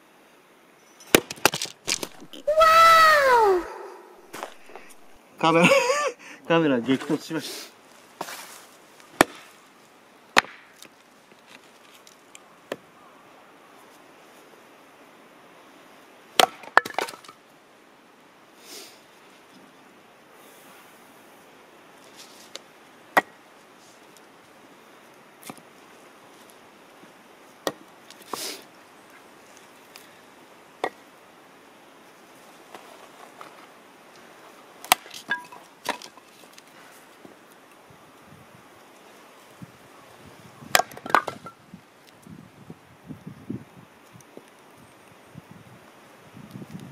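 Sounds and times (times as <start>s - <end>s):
axe chopping firewood: 1.1s - 3.4s, 9.2s - 9.5s, 10.4s - 10.8s, 16.4s - 17.3s, 23.2s - 23.4s, 27.6s - 27.8s, 34.8s - 36.2s, 40.7s - 41.5s.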